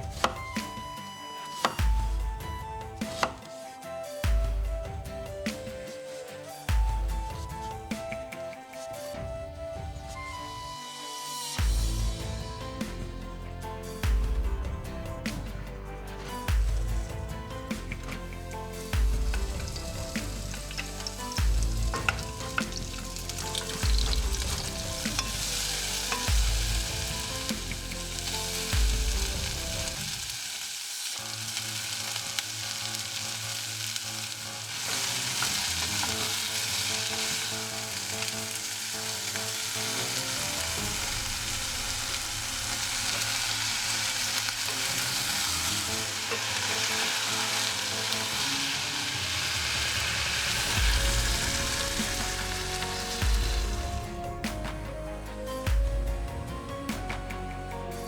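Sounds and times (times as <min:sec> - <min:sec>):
background music: 0:00.0 - 0:58.0
food sizzling in frying pan: 0:17.8 - 0:54.1.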